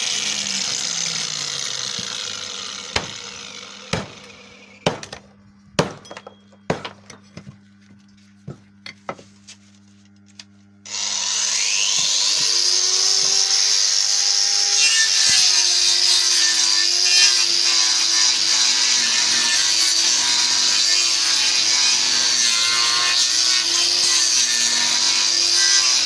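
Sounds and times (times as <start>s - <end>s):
power tool cutting wood: 0.0s - 5.0s, 10.9s - 26.0s.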